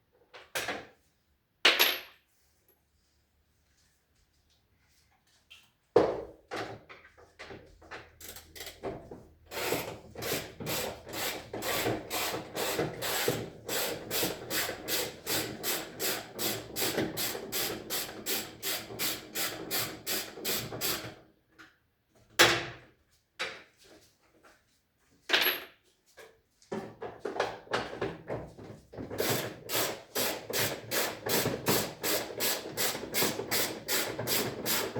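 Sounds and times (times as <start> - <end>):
hand tool rapid strokes: 9.5 - 21.1, 29.2 - 34.9.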